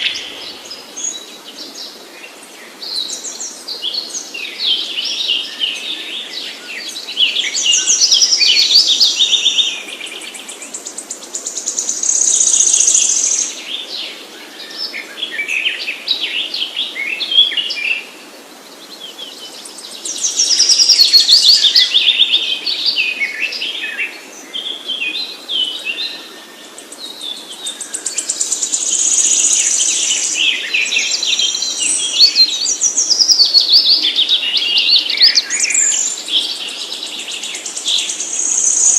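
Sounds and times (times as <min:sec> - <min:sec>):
small birds chirping: 0:24.7 - 0:38.9.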